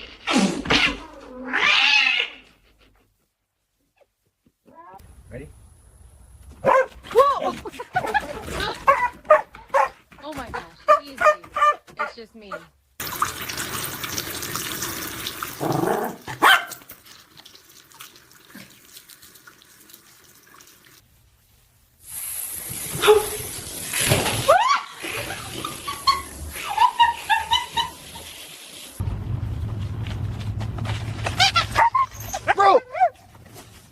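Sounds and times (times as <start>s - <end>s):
steady hiss: 21.0s - 29.2s
dog whining and yelping: 31.4s - 33.2s.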